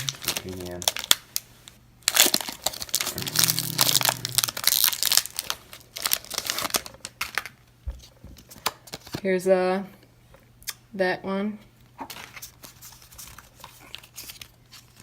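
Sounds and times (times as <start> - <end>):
foil wrapper tearing and crinkling: 0.0 - 1.4, 2.0 - 7.5.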